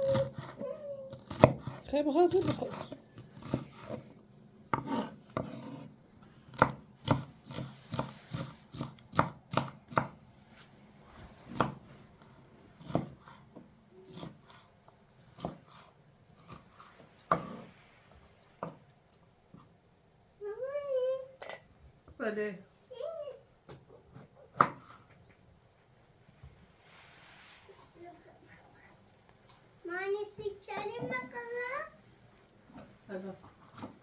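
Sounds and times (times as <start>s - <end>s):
knife chopping on cutting board: 0.0s - 4.1s, 4.7s - 5.9s, 6.5s - 10.2s, 11.5s - 11.8s, 12.8s - 17.7s, 23.7s - 25.1s.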